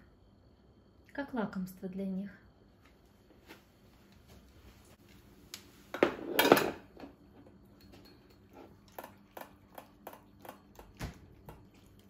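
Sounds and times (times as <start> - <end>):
spoon clinking against dishes: 7.7 - 9.1.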